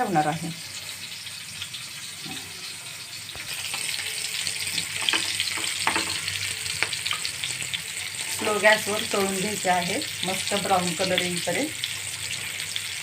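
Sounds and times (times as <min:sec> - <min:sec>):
fish sizzling in a frying pan: 0:00.0 - 0:13.0
oil crackles and pops: 0:03.3 - 0:08.7.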